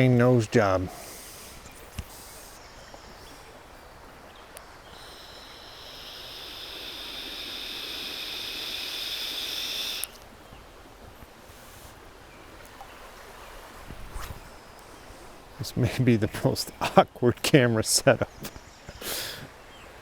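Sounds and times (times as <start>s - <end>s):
river current running: 0.0s - 13.9s
high buzzing: 4.6s - 10.2s.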